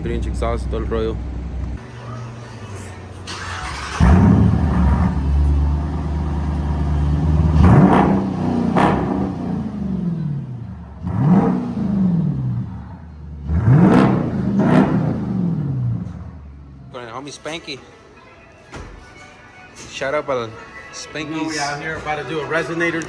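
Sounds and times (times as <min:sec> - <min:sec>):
car engine revving: 0:03.2 - 0:17.0.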